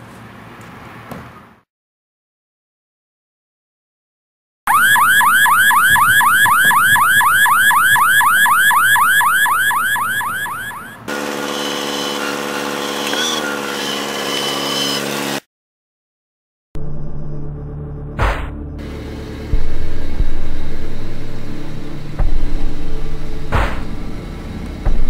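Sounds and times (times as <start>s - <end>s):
electronic alarm whooping chirp: 4.7s - 11.1s.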